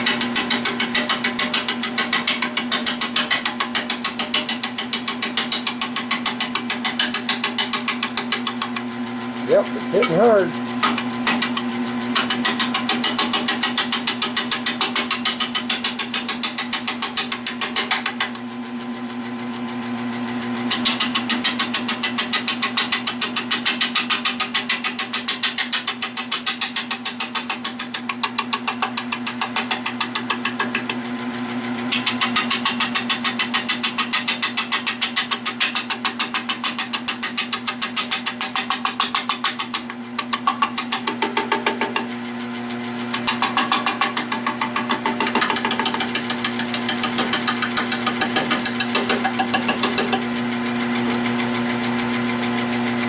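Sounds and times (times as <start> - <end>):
lathe gouge knocking on wood: 0.0 - 8.9, 9.7 - 18.4, 20.7 - 31.0, 31.9 - 42.2, 43.0 - 52.4
lathe motor hum: 0.0 - 53.0.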